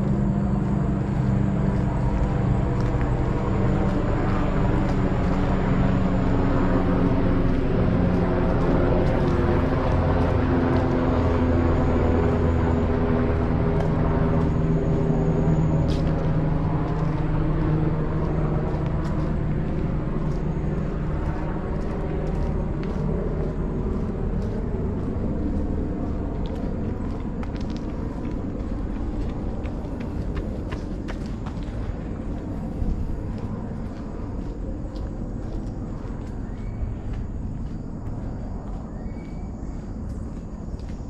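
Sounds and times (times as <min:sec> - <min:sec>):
vehicle engine droning: 0:00.0 - 0:41.0.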